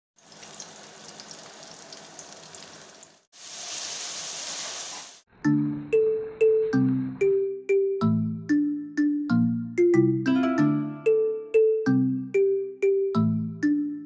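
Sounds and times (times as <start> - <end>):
food frying in hot oil: 0.2 - 5.2.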